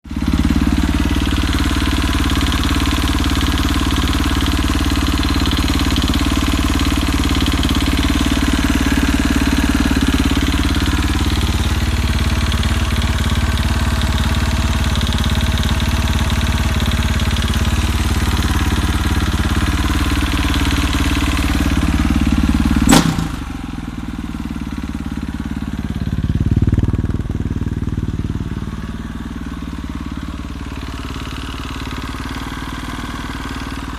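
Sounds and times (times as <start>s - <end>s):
engine idling with knocking: 0.0s - 33.9s
sharp click: 22.9s - 23.4s.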